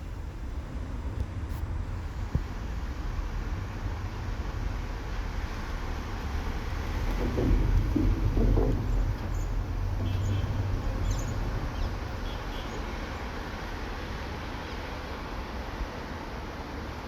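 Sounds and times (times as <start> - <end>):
street traffic hum: 0.0 - 17.0
passing vehicle rumble: 2.6 - 14.1.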